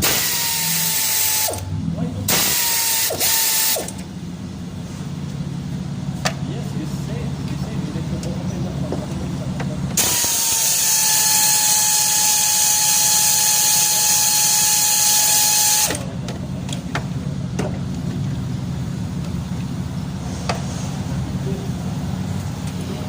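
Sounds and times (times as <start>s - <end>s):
power tool whining: 0.0s - 1.7s, 2.3s - 4.1s, 10.0s - 16.1s.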